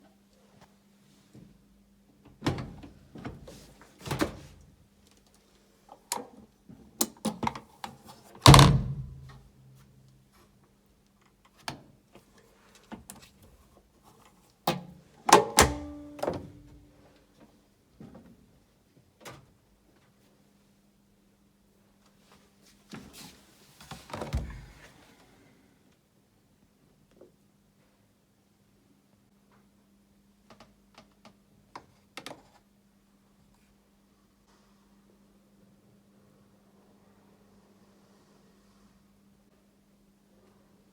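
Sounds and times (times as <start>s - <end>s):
washing machine knocks and clicks: 8.5s - 9.4s, 15.3s - 16.7s.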